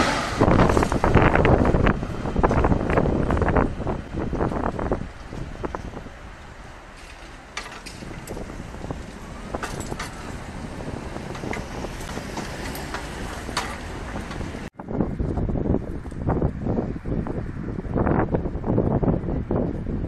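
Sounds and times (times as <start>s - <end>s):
train wheels rumbling on rails: 0.0s - 14.7s
wind buffeting microphone: 0.0s - 20.0s.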